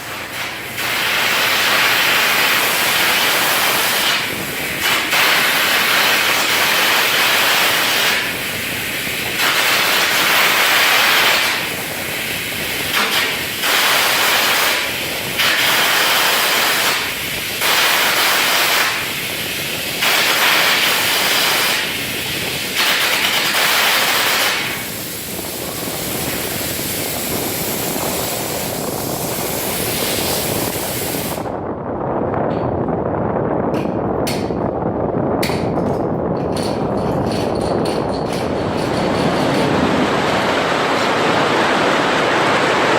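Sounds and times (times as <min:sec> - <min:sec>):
welding arc hissing and crackling: 0:00.0 - 0:31.5.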